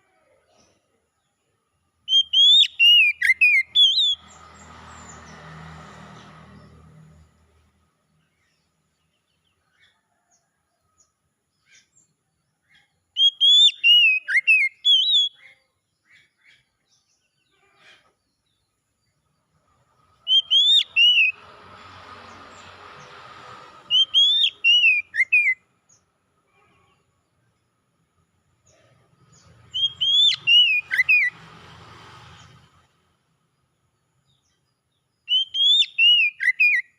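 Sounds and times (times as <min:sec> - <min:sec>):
bird singing sliding whistles: 0:02.1 - 0:04.4, 0:13.2 - 0:15.4, 0:20.2 - 0:21.5, 0:22.2 - 0:25.6, 0:29.7 - 0:31.4, 0:35.3 - 0:36.9.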